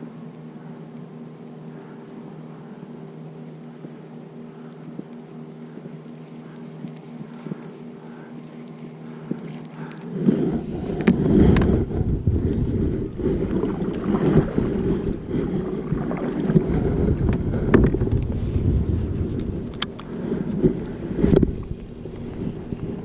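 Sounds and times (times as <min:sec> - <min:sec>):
faint steady hum: 0:00.0 - 0:23.0
wind buffeting microphone: 0:10.2 - 0:23.0
sharp clicks: 0:19.4 - 0:20.1.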